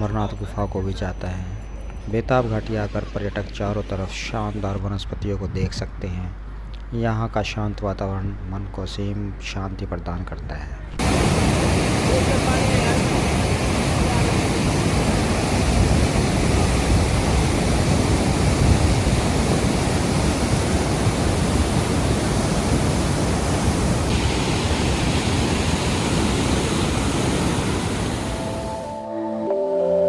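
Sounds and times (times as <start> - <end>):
flowing water rushing: 11.0 - 28.9.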